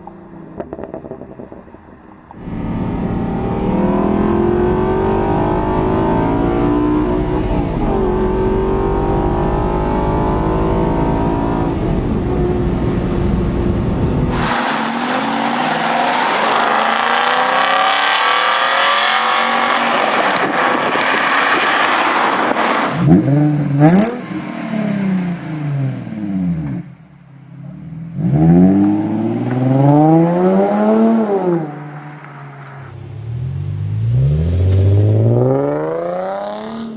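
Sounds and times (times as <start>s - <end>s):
car engine revving: 14.2s - 36.9s.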